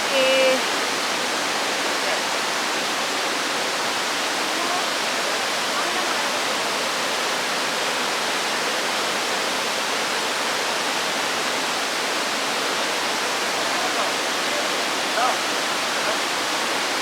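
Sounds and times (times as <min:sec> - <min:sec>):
large waterfall rushing: 0:00.0 - 0:17.0.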